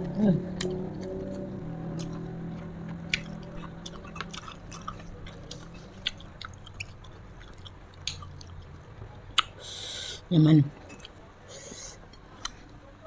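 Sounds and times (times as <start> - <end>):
chewing food: 0.6 - 9.6.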